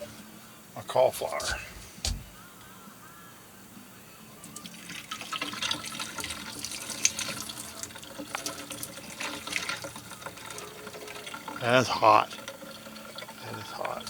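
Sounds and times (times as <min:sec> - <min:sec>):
hot water pouring and splashing: 0:04.6 - 0:14.0.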